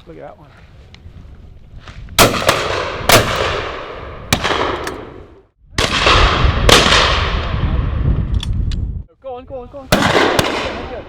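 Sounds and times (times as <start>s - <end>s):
shotgun shots with echo: 2.2s - 5.2s.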